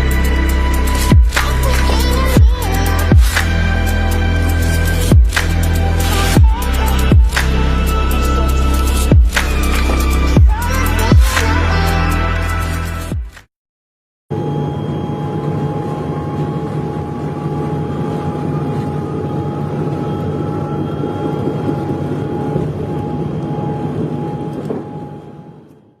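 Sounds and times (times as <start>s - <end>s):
steady whistle-like tone: 0.0s - 13.1s, 14.3s - 25.9s
faint whine rising in pitch: 14.3s - 26.0s
low mechanical hum: 14.3s - 26.0s.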